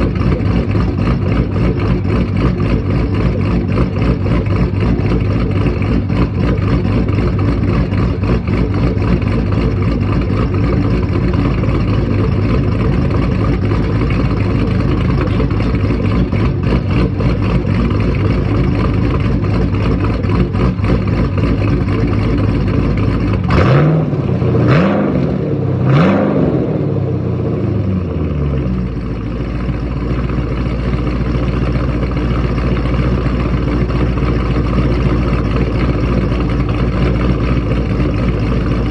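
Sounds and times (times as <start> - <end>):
car engine revving: 0.0 - 29.0
car engine idling: 0.0 - 38.9.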